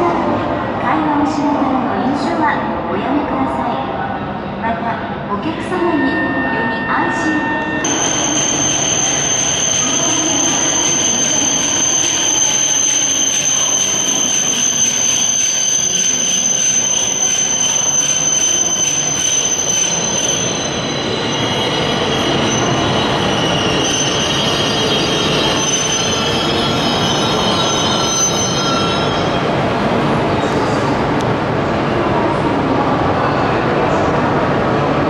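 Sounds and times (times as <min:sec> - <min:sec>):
high train squeal: 0:03.9 - 0:31.2
train rumbling: 0:04.4 - 0:35.0.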